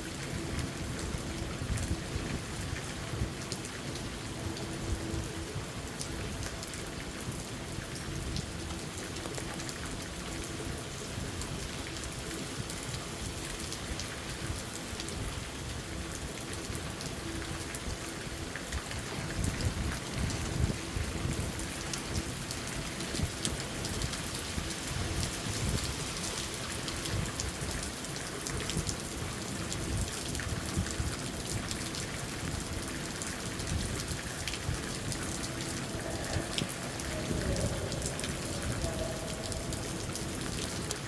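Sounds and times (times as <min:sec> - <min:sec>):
rain hiss: 0:00.0 - 0:41.0
raindrops ticking on a surface: 0:00.0 - 0:41.0
low rumble: 0:34.7 - 0:41.0.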